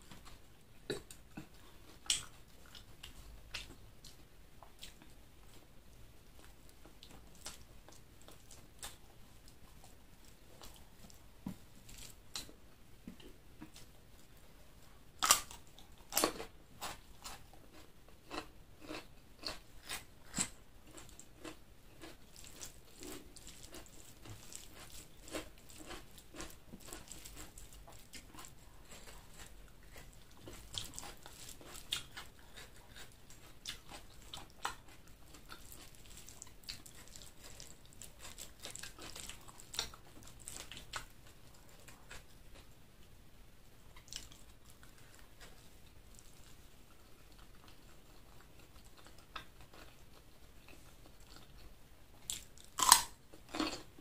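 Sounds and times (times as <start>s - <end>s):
chewing and crunching food: 0.0s - 43.1s, 43.9s - 54.0s.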